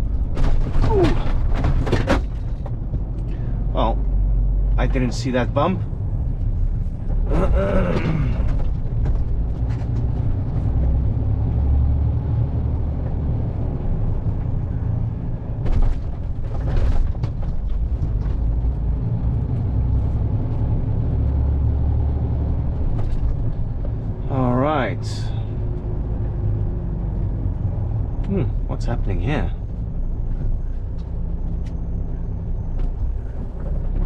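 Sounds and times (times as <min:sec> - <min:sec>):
lorry diesel engine drone: 0:00.0 - 0:34.0
short knocks or rattles: 0:00.2 - 0:03.2.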